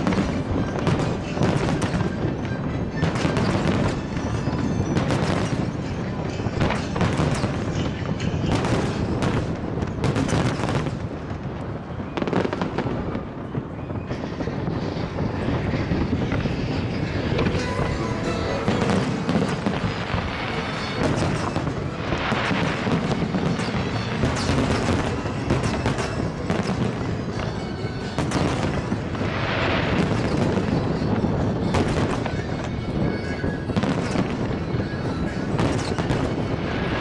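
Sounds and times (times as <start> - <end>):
fireworks bursting: 0.0 - 37.0
music playing: 14.2 - 37.0.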